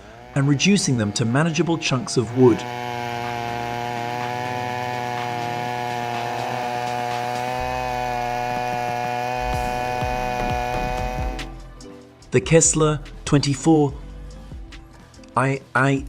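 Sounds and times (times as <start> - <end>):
chainsaw running: 0.0 - 11.8.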